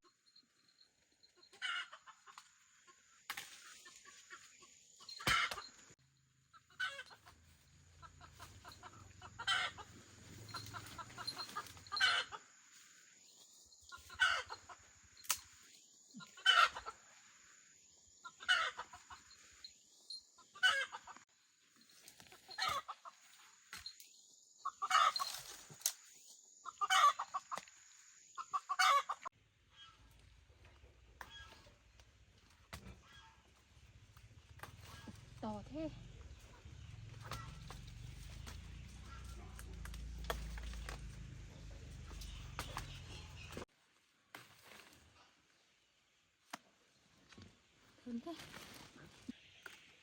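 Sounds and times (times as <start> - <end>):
chickens clucking: 1.3 - 3.0, 3.6 - 5.9, 6.6 - 12.9, 13.8 - 15.0, 16.2 - 17.2, 18.2 - 19.7, 20.4 - 21.2, 22.1 - 23.9, 24.6 - 25.8, 26.5 - 43.7.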